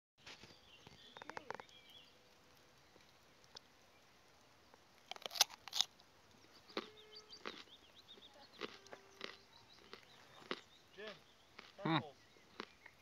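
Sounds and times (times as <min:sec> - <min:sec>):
small birds chirping: 0:00.2 - 0:13.0
sharp crunching clicks: 0:05.0 - 0:06.0.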